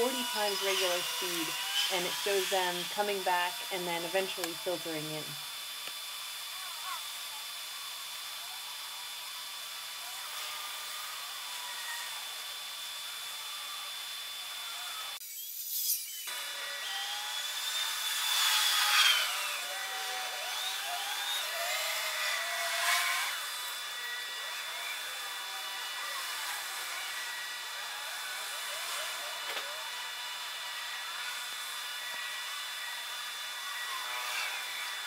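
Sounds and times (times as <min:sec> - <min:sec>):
sped-up high whirring hiss: 0:00.0 - 0:34.0
squeaky chirps and squeals: 0:15.2 - 0:16.3.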